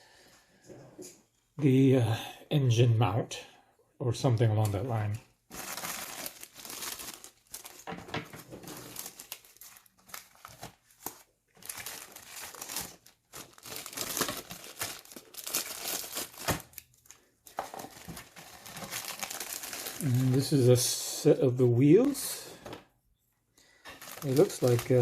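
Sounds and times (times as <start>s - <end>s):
plastic bags crinkling: 5.5s - 20.5s, 23.6s - 25.0s.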